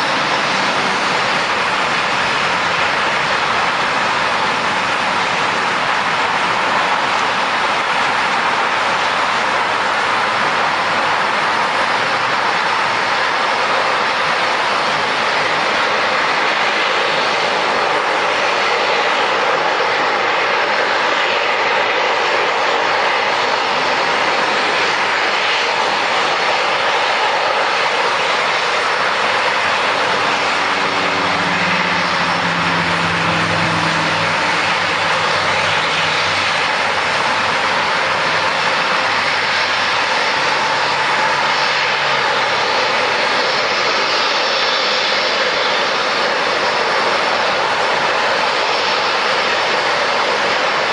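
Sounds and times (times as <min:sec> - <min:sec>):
airliner engines roaring: 0:00.0 - 0:50.9
deep drone: 0:23.2 - 0:44.1.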